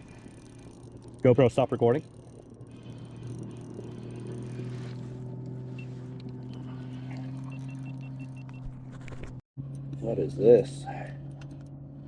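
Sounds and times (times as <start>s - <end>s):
electric motor humming: 0.0s - 10.0s
faint high electronic beeps: 7.4s - 8.7s.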